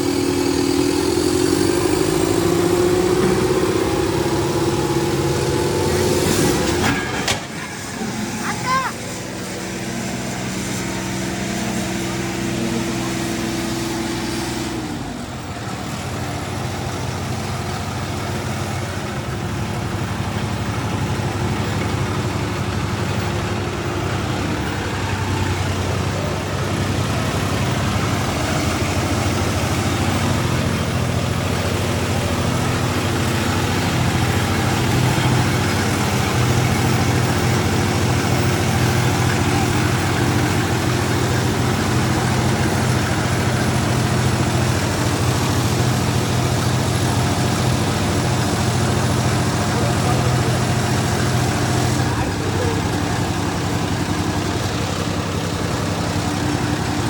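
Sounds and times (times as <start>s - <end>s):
tractor diesel engines running: 0.0s - 57.0s
voices in background: 48.3s - 57.0s.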